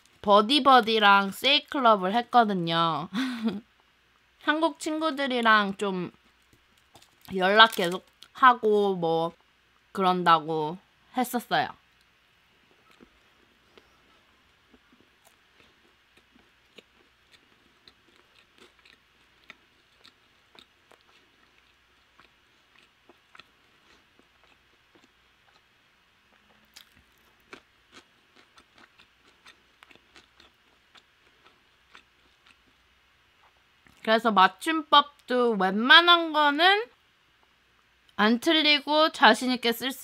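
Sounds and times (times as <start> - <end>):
chewing crispy fried chicken: 12.6 - 34.1.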